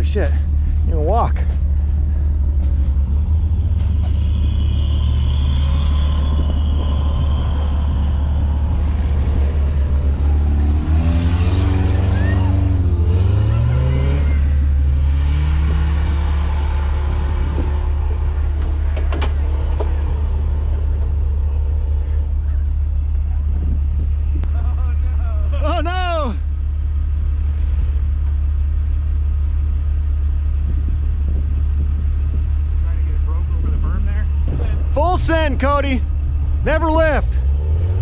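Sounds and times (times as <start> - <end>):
engine revving under load: 1.9 - 24.5, 30.6 - 38.0.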